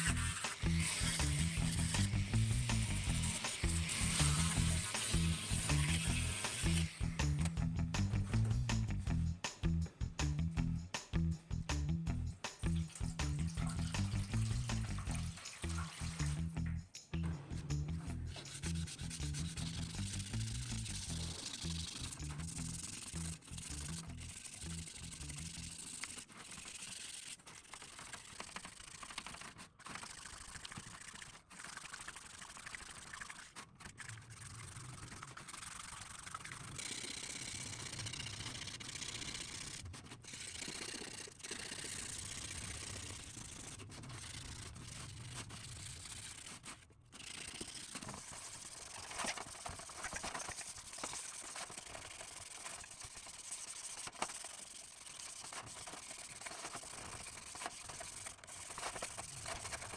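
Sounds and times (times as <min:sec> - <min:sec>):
brushing and scraping metal parts: 0:00.0 - 0:09.3, 0:11.8 - 0:27.5.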